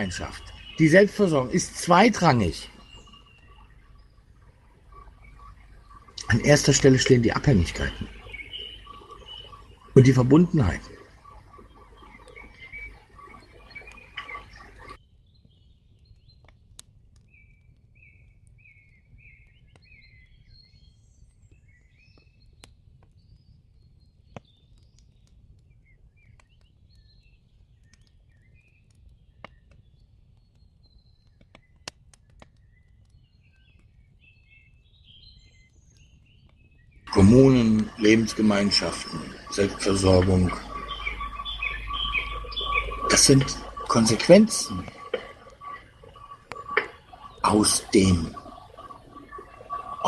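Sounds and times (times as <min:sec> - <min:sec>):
faint birds chirping: 0:00.0 - 0:50.0
faint clicks: 0:01.4 - 0:19.9, 0:37.5 - 0:50.0.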